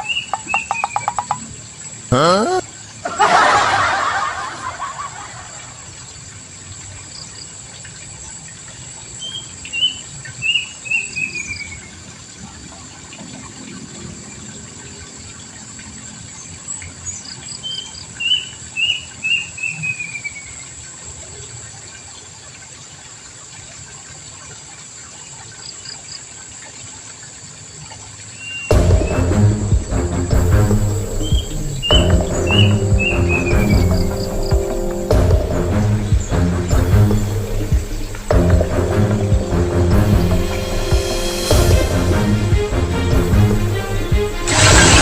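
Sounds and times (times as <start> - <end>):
bird singing: 0.0 - 1.5, 30.6 - 38.3.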